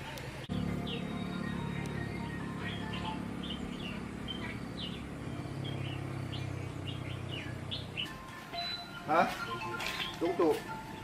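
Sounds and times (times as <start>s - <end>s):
small birds chirping: 0.1s - 11.0s
steady low hum: 0.4s - 9.0s.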